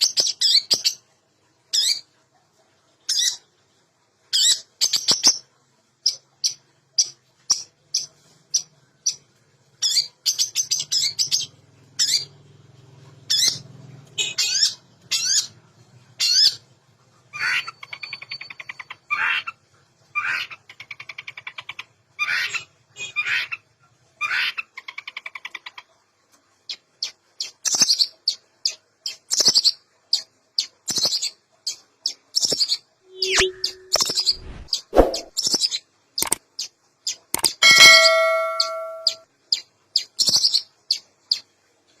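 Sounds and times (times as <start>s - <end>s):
shrike singing: 33.1s - 35.3s, 37.6s - 39.2s.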